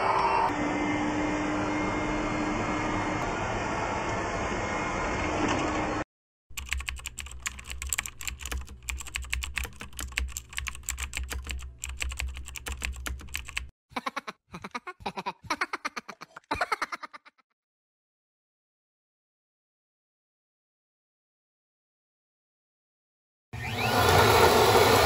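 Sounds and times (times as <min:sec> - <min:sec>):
computer keyboard typing: 0:06.5 - 0:13.7.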